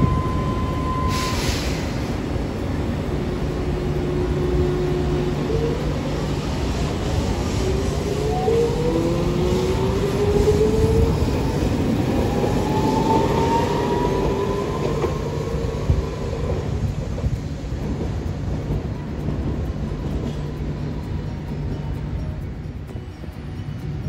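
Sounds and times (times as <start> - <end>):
tram motor whining: 0.0 - 24.0
wheels rumbling on rails: 0.0 - 24.0.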